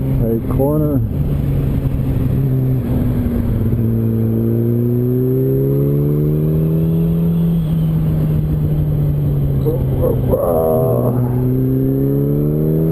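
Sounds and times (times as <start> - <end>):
motorcycle engine accelerating: 1.2 - 12.9.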